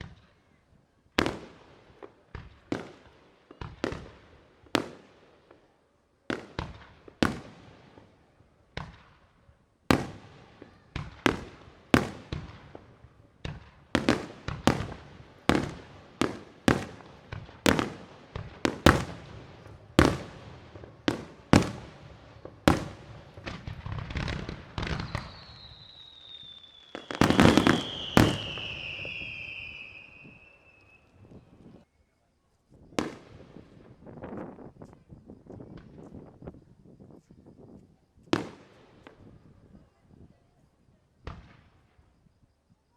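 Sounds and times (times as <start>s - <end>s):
fireworks bursting in sharp bangs: 0.0s - 0.5s, 1.2s - 31.8s, 33.0s - 34.2s, 38.4s - 39.6s, 41.2s - 42.1s
falling whistling tone: 24.8s - 32.2s.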